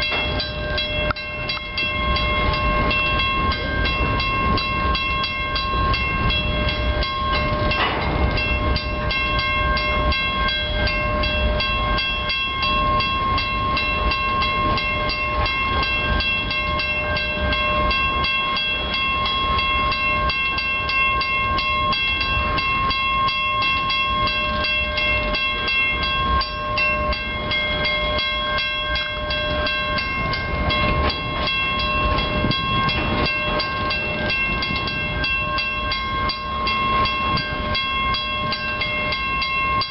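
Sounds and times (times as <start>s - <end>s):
crossing warning bell ringing: 0.0s - 39.9s
freight train rumbling past: 0.0s - 39.9s.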